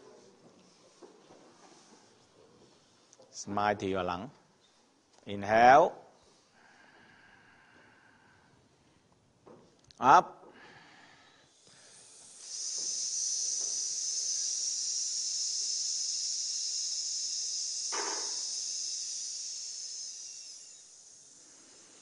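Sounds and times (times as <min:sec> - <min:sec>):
man hissing through teeth: 0:11.5 - 0:22.0.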